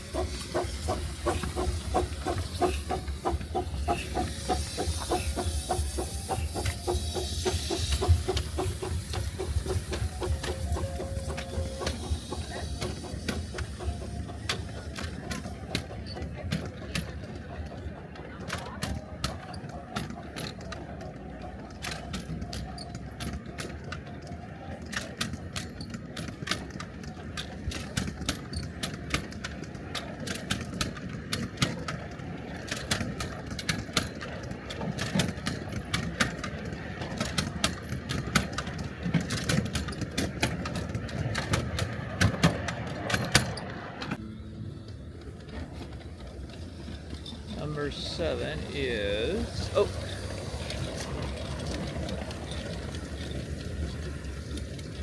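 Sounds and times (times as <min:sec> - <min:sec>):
miniature train rumbling: 0:00.0 - 0:55.0
wheels clicking and clattering: 0:00.0 - 0:55.0.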